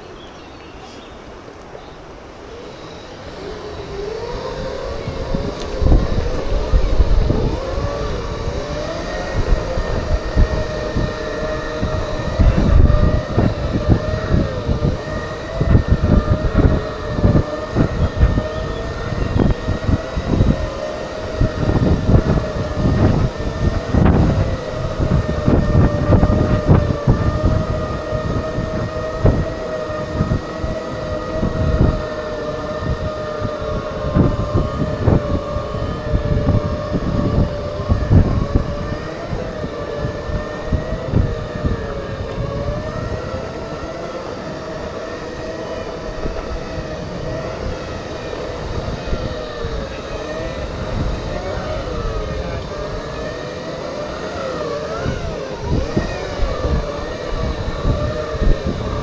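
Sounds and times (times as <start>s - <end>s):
electric motors whining: 0.0s - 59.0s
wind buffeting microphone: 0.0s - 59.0s.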